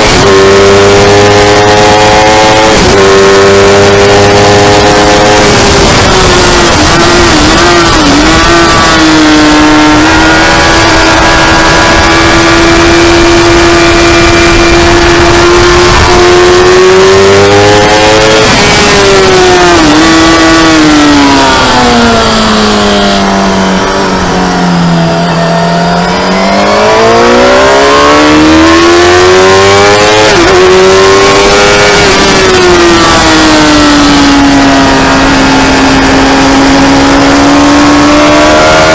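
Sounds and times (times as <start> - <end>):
loud rush of noise: 0.0 - 38.9
motorcycle engine revving: 0.0 - 38.9.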